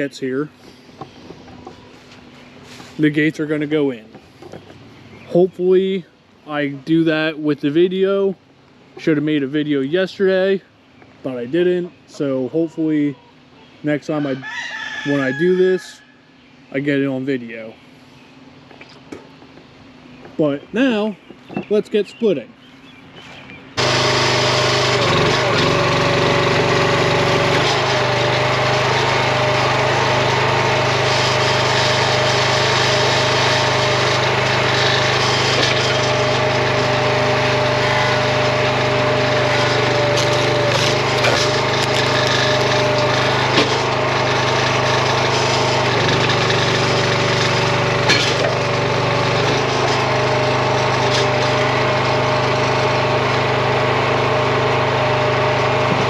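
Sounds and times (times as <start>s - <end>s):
small gas engine running: 23.8s - 56.0s.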